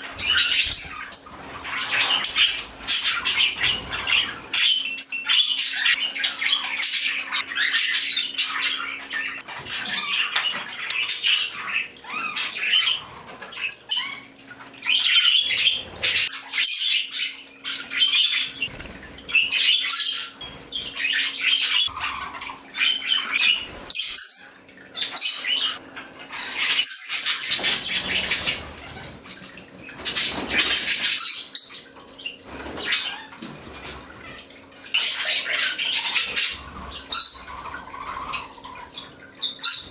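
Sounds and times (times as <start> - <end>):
parakeets chirping and squawking: 0.0 - 39.9.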